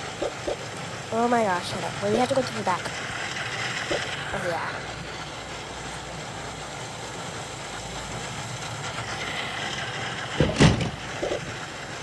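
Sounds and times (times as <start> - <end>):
car engine rumble: 0.0 - 12.0
road noise: 0.0 - 12.0
loud thump: 10.4 - 11.0.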